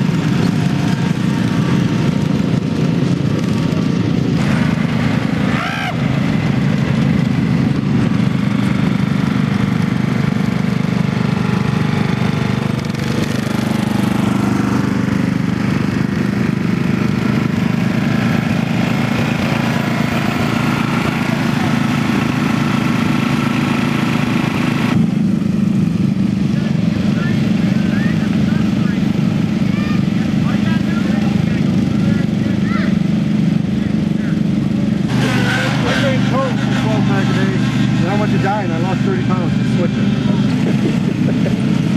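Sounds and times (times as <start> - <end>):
riding lawn mower engines droning: 0.0 - 41.9.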